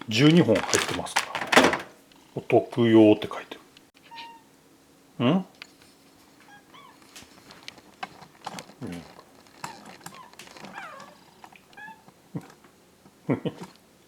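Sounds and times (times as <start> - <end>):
cat meowing: 4.0 - 4.5, 6.4 - 7.0, 9.6 - 12.5
light clicks and rustles: 5.6 - 12.8.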